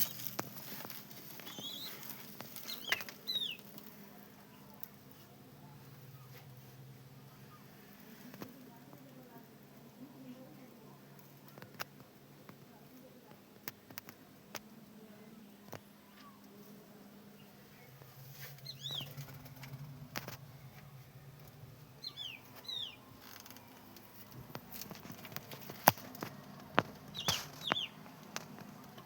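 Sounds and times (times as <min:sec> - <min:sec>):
pigeons chirping: 0:00.0 - 0:03.8, 0:18.6 - 0:20.4, 0:21.9 - 0:24.0, 0:24.6 - 0:28.9
low steady hum: 0:14.2 - 0:29.0.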